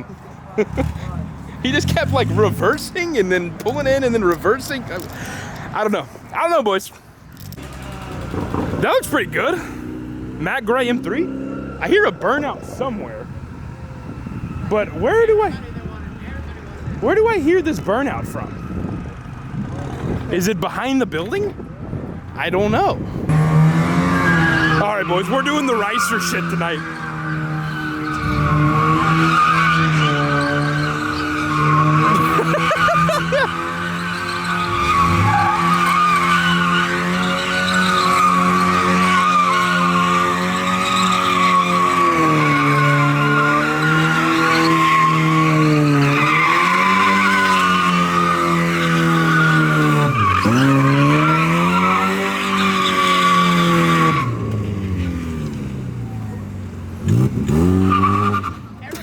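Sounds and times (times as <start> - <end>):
car engine at high revs: 0.0 - 6.6, 7.4 - 20.4, 22.7 - 58.9
tyres squealing: 24.0 - 55.0.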